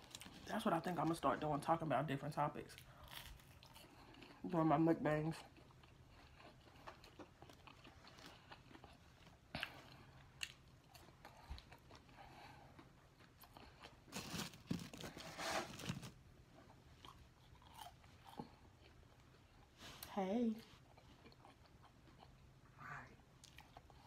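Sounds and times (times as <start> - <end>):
crunching fries: 2.7 - 16.2, 17.0 - 19.4.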